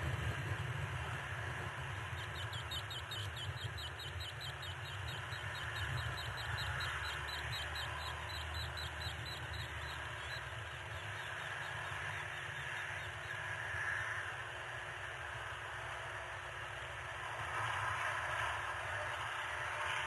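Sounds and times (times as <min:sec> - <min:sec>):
bird chirping rapidly: 0:02.2 - 0:12.6.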